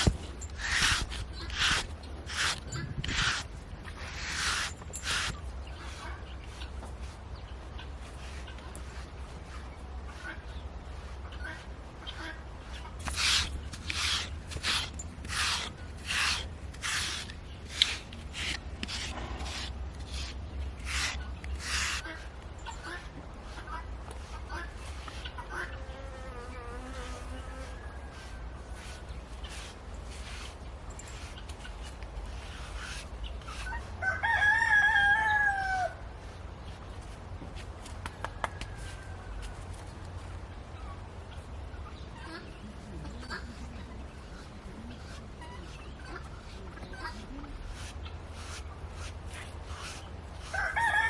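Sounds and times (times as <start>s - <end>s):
brush strokes on horse coat: 0.0s - 25.8s, 26.7s - 34.8s, 44.3s - 51.0s
rooster crowing: 34.0s - 36.0s, 50.5s - 51.0s.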